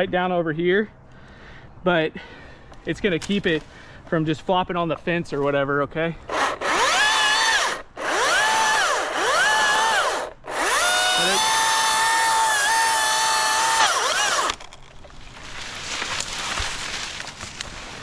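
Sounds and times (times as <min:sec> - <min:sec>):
electric saw motor whining: 0:06.3 - 0:14.7.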